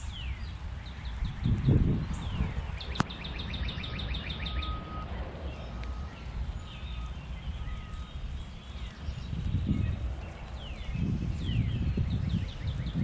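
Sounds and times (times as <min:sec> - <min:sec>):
songbird chirping trill: 0:00.0 - 0:13.0
steady low rumble: 0:00.0 - 0:13.0.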